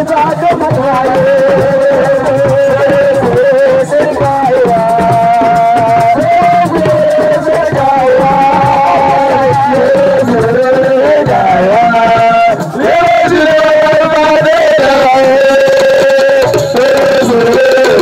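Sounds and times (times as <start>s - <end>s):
drums beating: 0.0s - 18.0s
person singing long notes: 0.0s - 18.0s.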